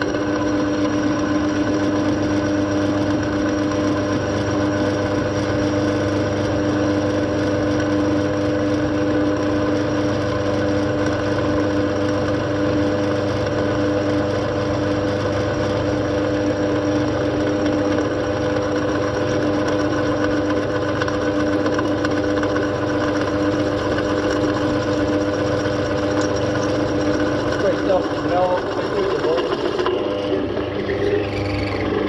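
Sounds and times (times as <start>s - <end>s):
engine humming steadily: 0.0s - 32.0s.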